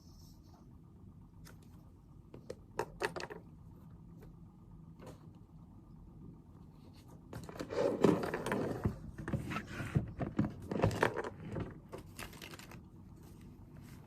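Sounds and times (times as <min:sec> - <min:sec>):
rustling and scraping on a desk: 0:06.7 - 0:14.0.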